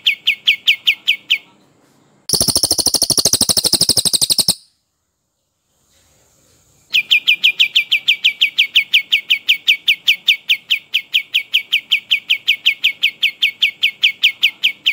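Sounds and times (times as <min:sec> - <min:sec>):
songbird whistling: 0:02.3 - 0:04.8.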